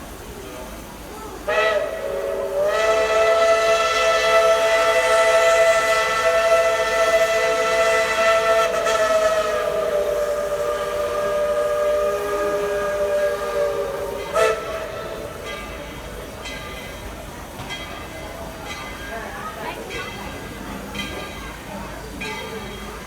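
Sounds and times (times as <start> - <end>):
steam locomotive chime whistle: 1.4 - 23.0.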